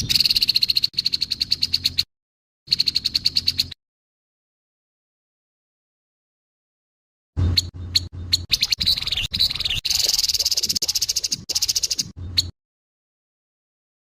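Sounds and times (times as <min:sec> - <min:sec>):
bird giving harsh rattling calls: 0:00.0 - 0:02.1, 0:02.7 - 0:03.8, 0:07.5 - 0:12.5.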